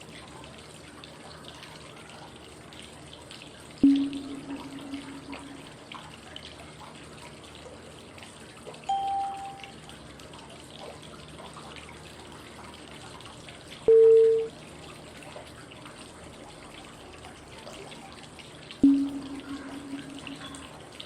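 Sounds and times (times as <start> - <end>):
flowing water: 0.0 - 21.0
short high cue tone: 3.8 - 5.7, 8.9 - 9.7, 13.9 - 14.5, 18.8 - 20.8
low long cue tone: 3.8 - 5.9, 8.9 - 9.8, 13.9 - 14.5, 18.8 - 21.0.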